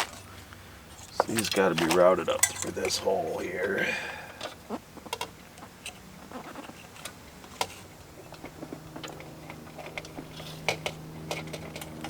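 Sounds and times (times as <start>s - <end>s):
wire tapping against metal: 1.2s - 3.0s.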